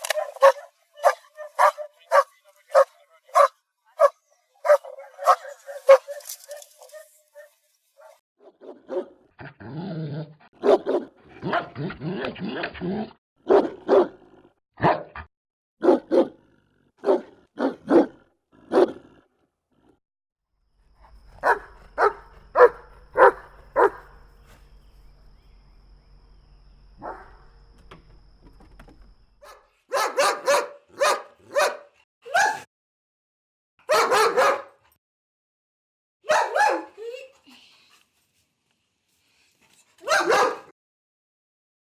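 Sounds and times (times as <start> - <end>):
dogs barking: 0.0 - 9.2, 10.6 - 11.9, 13.4 - 15.1, 15.8 - 16.4, 17.0 - 19.1, 21.4 - 24.2, 27.0 - 27.4, 29.4 - 32.7, 33.8 - 34.8, 36.2 - 37.0, 40.0 - 40.7.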